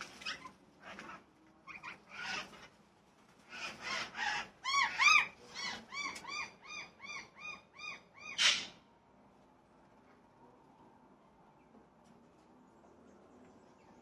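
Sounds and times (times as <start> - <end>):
bird calling: 3.5 - 8.8.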